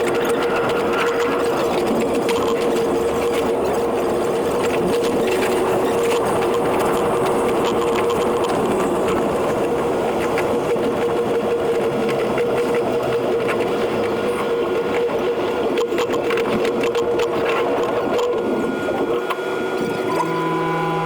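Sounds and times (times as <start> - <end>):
sped up train clatter: 0.0 - 15.2
train motor hum: 20.1 - 21.0.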